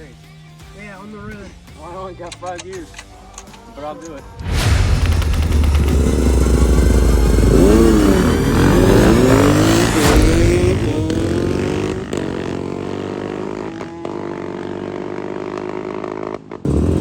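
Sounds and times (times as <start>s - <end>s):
dirt bike engine revving: 4.4s - 17.0s.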